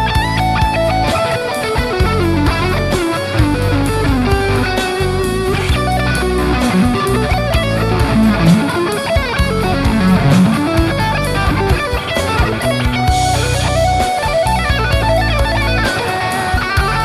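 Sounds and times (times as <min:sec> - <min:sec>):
electric guitar melodic lines: 0:00.0 - 0:17.0
low sustained bass notes: 0:02.0 - 0:11.8
regular beats: 0:03.5 - 0:13.2.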